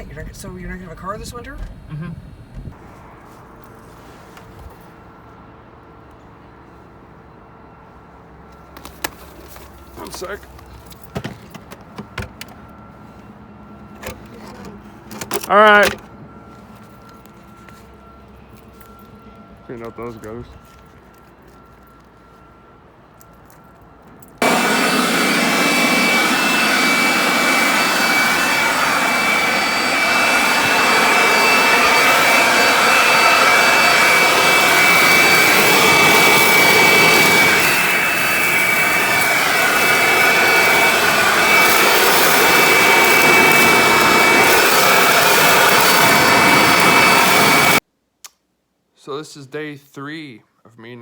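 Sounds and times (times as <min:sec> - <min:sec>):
high whine: 0:00.0 - 0:02.8, 0:24.4 - 0:47.8
machine air rushing: 0:00.0 - 0:02.8, 0:24.4 - 0:47.8.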